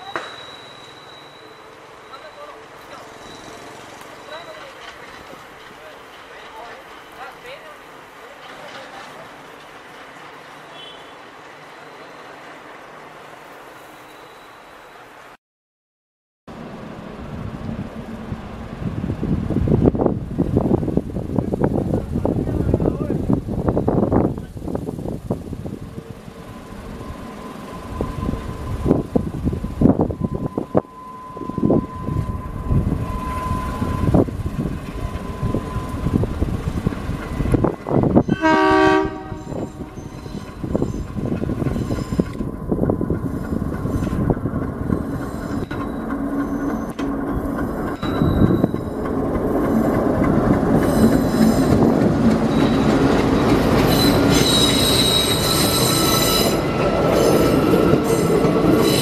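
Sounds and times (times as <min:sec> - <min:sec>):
high wheel squeal: 0:00.0 - 0:05.0, 0:10.1 - 0:12.6, 0:13.6 - 0:15.0, 0:25.9 - 0:50.1, 0:50.7 - 0:59.0
train wheels clattering over rails: 0:02.1 - 0:10.7, 0:39.1 - 0:59.0
train horn blast: 0:10.7 - 0:11.2, 0:38.3 - 0:40.1.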